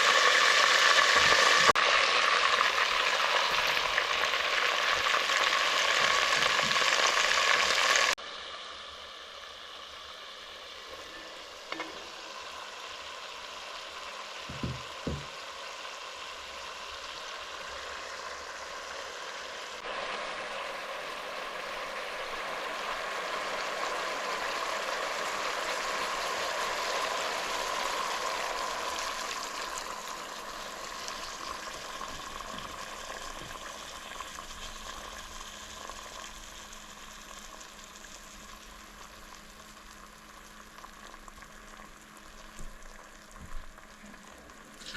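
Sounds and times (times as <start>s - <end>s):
food sizzling in hot oil: 0.0s - 44.9s
utensil knocking: 14.5s - 15.3s.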